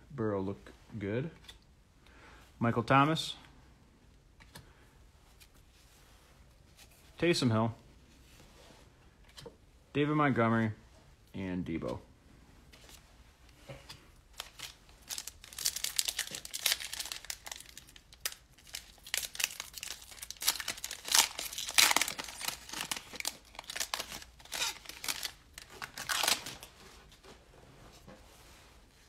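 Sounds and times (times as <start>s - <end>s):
cellophane wrapper crinkling: 14.3s - 26.7s.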